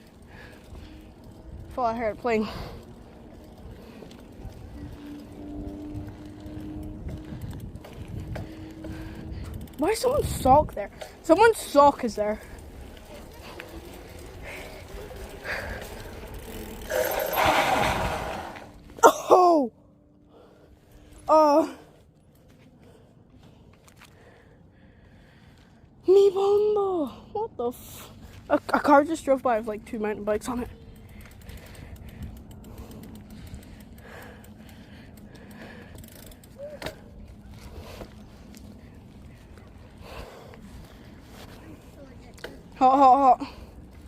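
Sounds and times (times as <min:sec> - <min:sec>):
freewheel ticking: 0:00.0 - 0:18.3, 0:30.3 - 0:37.2
tyre and wind rumble: 0:00.0 - 0:19.1, 0:30.2 - 0:44.0
rush of noise: 0:16.8 - 0:18.8.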